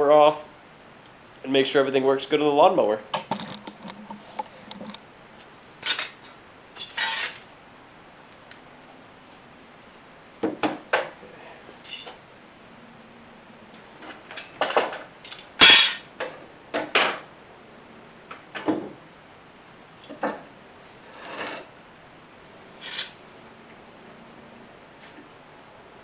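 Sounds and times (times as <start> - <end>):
tools and parts clinking and scraping: 3.2 - 5.0, 5.8 - 7.5, 11.8 - 12.2, 14.0 - 17.2, 21.0 - 21.7, 22.8 - 23.2.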